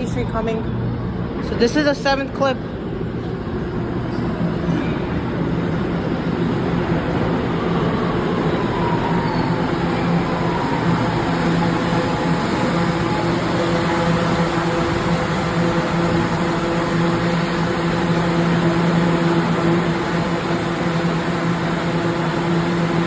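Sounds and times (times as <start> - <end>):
wheels rumbling on track: 0.0 - 23.0
train whine falling in pitch: 6.9 - 23.0.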